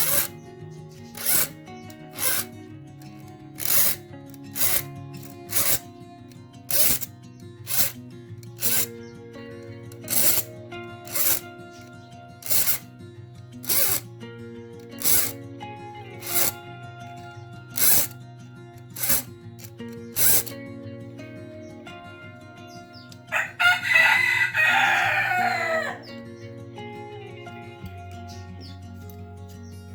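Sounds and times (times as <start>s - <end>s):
hand file rasping on saw teeth: 0.0s - 0.4s, 1.0s - 2.5s, 3.6s - 5.9s, 6.7s - 7.1s, 7.7s - 9.0s, 10.0s - 11.8s, 12.4s - 12.9s, 13.6s - 14.0s, 14.9s - 15.4s, 16.2s - 16.6s, 17.8s - 18.2s, 19.0s - 20.5s
background music: 0.0s - 29.9s.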